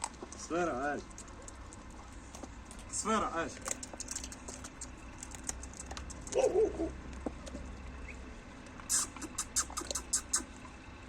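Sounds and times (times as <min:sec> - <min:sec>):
dogs crunching dry food: 0:00.0 - 0:07.9, 0:08.6 - 0:10.6
dog whining: 0:06.3 - 0:07.0, 0:08.9 - 0:10.5.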